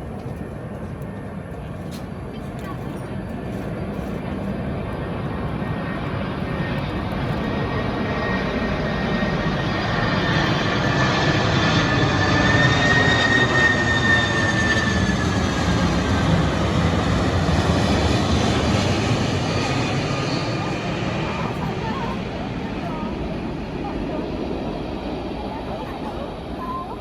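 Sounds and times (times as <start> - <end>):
jet engines roaring: 0.0 - 27.0
thin high engine whine: 0.0 - 27.0.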